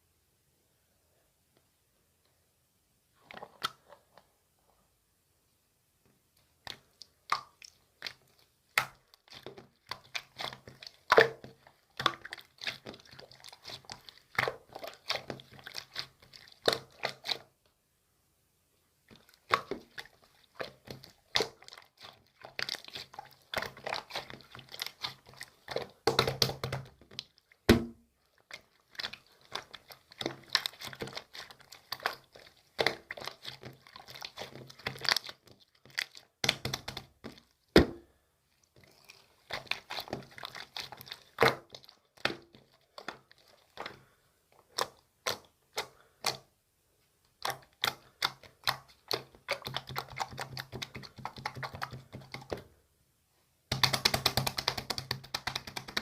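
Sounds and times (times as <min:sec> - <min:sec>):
crinkling handling sounds: 0:19.1 - 0:46.4.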